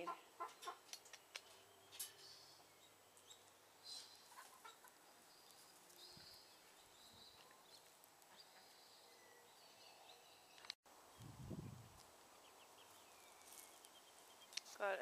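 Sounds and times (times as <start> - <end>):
hens clucking: 0.0 - 1.0, 4.3 - 5.0
high calls and clicks: 0.4 - 2.2.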